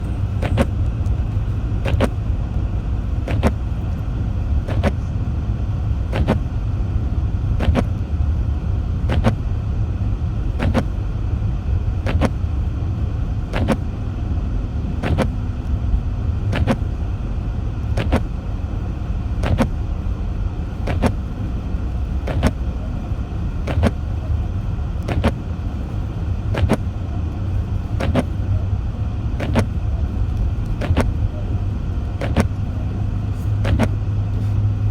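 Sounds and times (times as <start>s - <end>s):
car cabin rumble: 0.0s - 34.9s
sharp click: 32.2s - 32.6s, 33.6s - 34.0s.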